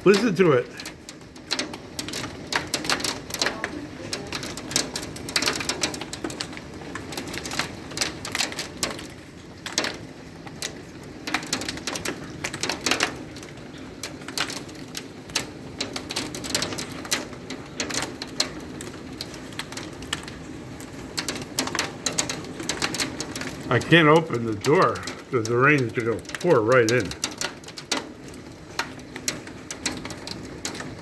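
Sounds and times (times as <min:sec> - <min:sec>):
heavy rain hiss: 0:00.0 - 0:00.9, 0:22.2 - 0:27.5
hailstones clattering on house: 0:00.0 - 0:31.0.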